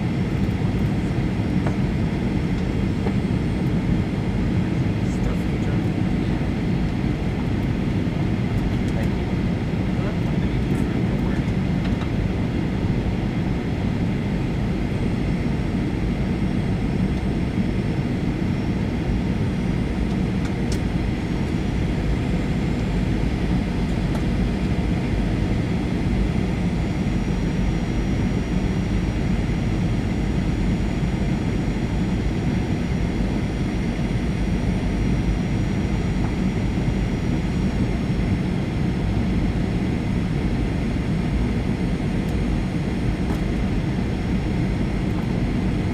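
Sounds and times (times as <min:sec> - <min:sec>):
airflow rushing in aircraft cabin: 0:00.0 - 0:15.0, 0:35.6 - 0:45.9
jet engines humming: 0:00.0 - 0:16.2, 0:16.8 - 0:45.9.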